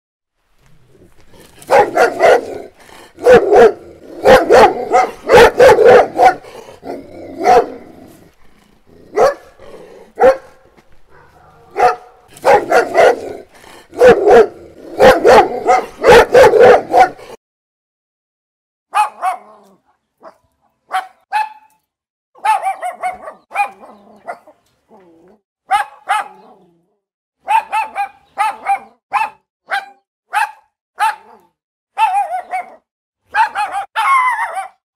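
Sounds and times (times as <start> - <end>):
large dog barking loudly: 1.4 - 8.1, 9.0 - 17.4, 18.9 - 21.7, 22.4 - 24.6, 25.7 - 26.6, 27.4 - 31.4, 32.0 - 34.8
small dog high-pitched barks: 1.6 - 2.5, 3.2 - 6.4, 7.4 - 7.8, 10.2 - 10.5, 11.1 - 13.2, 14.0 - 17.2, 18.9 - 21.7, 22.4 - 24.6, 25.7 - 26.4, 27.4 - 31.4, 32.0 - 34.8.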